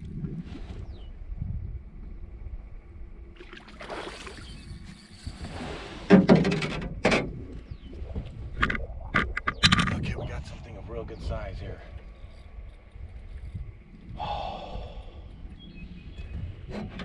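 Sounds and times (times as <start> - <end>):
low rumble: 7.1 - 16.7
sharp clicks and knocks: 8.6 - 10.0.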